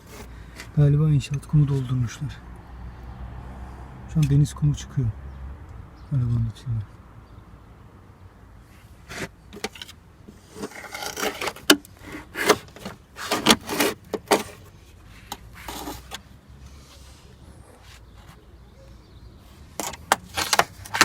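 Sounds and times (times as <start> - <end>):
grit scraping against sheet metal: 10.4 - 14.7.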